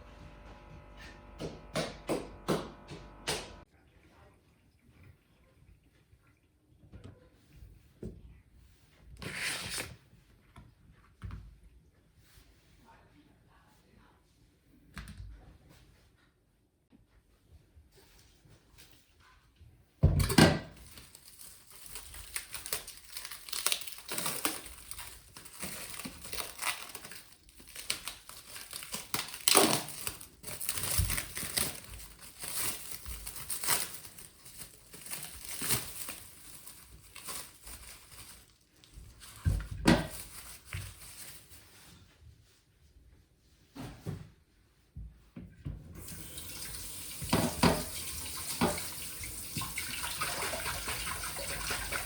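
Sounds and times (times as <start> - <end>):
packaging crinkling and rustling: 20.7 - 42.0.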